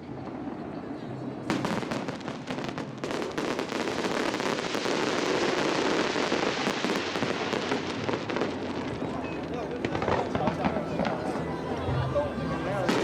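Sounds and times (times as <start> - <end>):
fireworks crackling: 0.1 - 13.0.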